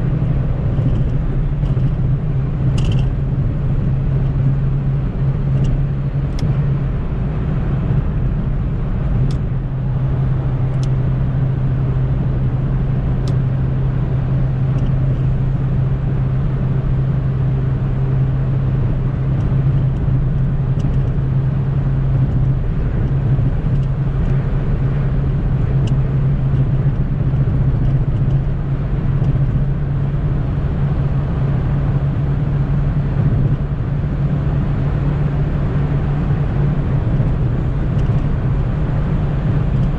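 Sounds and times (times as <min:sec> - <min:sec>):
car engine droning: 0:00.0 - 0:39.9
road and wind noise: 0:00.0 - 0:39.9.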